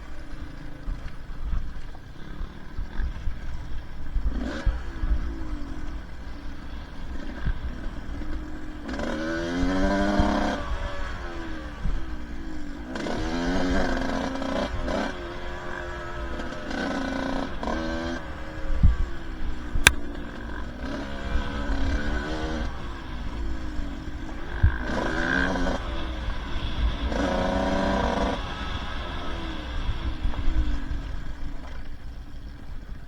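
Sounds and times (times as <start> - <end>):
dirt bike engine revving: 8.8 - 11.8, 12.9 - 31.3.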